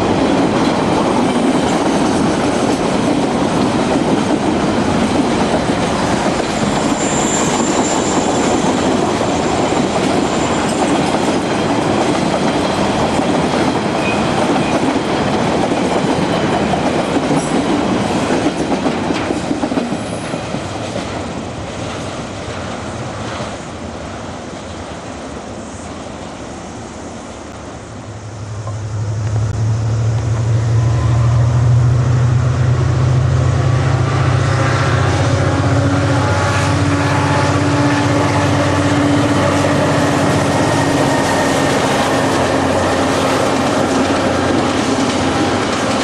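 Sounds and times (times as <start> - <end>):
high wheel squeal: 6.4 - 10.9
wheels clicking over rail joints: 39.4 - 46.0.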